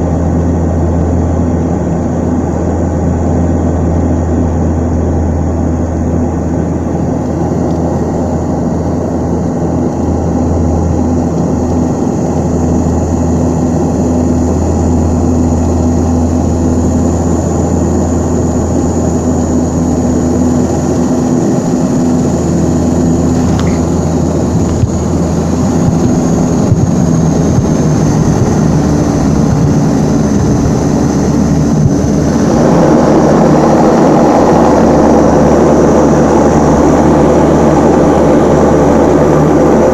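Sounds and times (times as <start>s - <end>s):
turboprop engines running: 0.0s - 39.9s.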